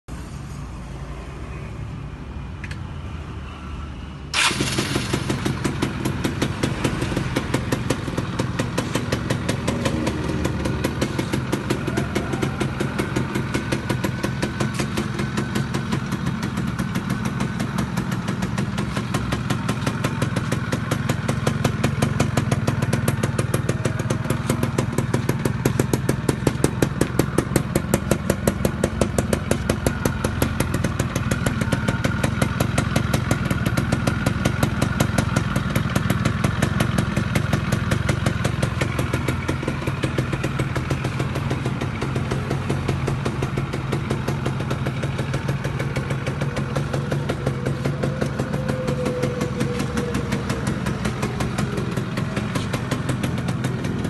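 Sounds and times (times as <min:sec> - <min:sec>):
two-stroke engine starting and idling: 0:04.3 - 0:54.0.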